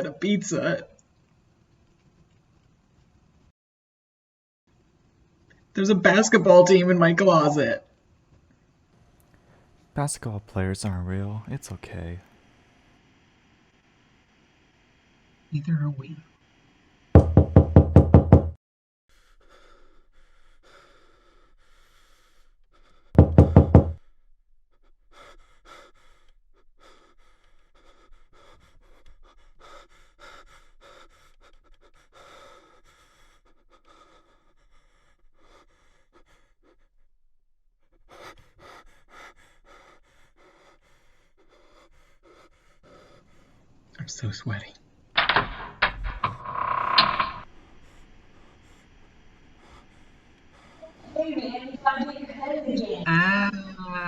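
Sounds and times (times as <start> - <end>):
rapid loud knocking: 23.2 - 24.0.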